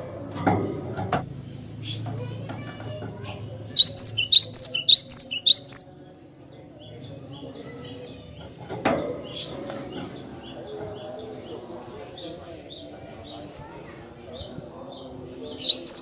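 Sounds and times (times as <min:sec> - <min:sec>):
bird singing high notes: 0:03.8 - 0:05.9, 0:15.7 - 0:16.0.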